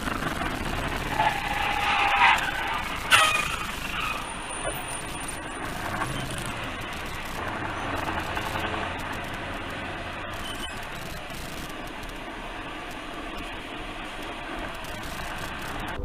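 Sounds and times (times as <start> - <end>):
vehicle and road noise: 0.0 - 16.0.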